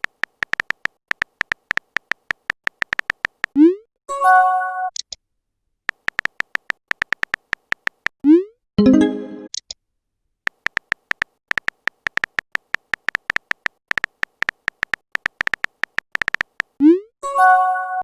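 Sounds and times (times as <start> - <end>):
keyboard tapping clicks: 0.0 - 3.6, 5.9 - 8.2, 10.5 - 16.8.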